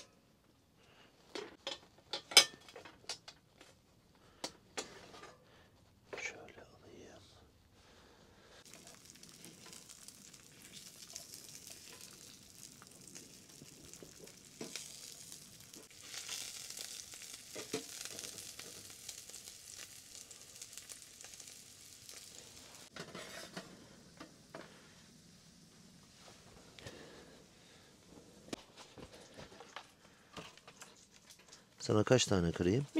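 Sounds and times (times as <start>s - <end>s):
food sizzling in a frying pan: 8.6s - 27.3s.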